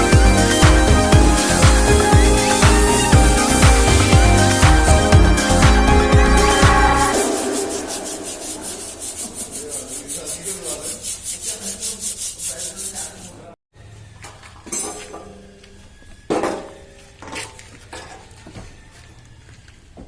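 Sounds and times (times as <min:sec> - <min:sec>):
sandpaper rubbing on car panel: 0:07.1 - 0:13.5.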